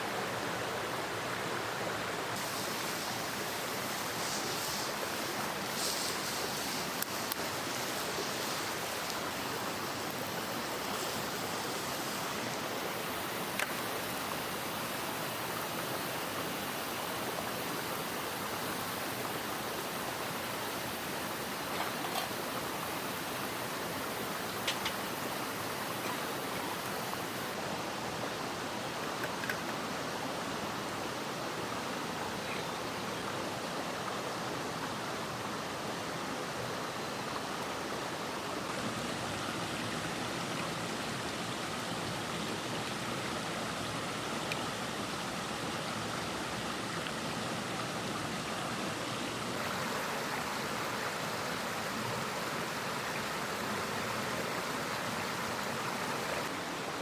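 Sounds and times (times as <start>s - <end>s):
stream rushing: 0.0s - 57.0s.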